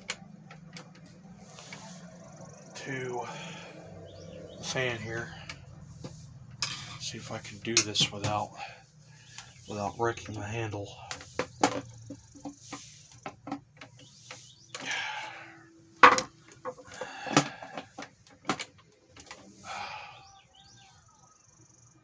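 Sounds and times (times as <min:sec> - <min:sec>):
plastic clicks and knocks: 0:16.0 - 0:19.4.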